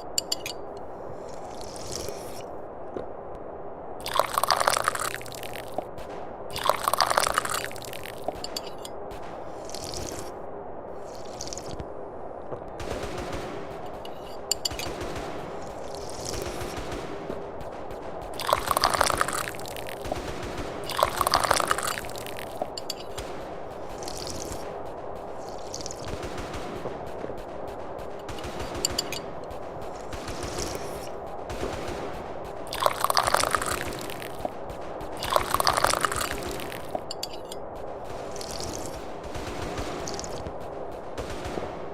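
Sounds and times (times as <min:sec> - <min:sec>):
tea slurping from a cup: 0:01.2 - 0:02.5, 0:04.0 - 0:05.8, 0:06.5 - 0:08.4, 0:09.6 - 0:10.3, 0:11.0 - 0:11.8, 0:18.4 - 0:20.0, 0:20.9 - 0:23.1, 0:23.9 - 0:24.6, 0:25.4 - 0:26.1, 0:32.7 - 0:34.4, 0:35.2 - 0:37.0, 0:38.4 - 0:39.0
fine crackling clicks: 0:12.5 - 0:41.7.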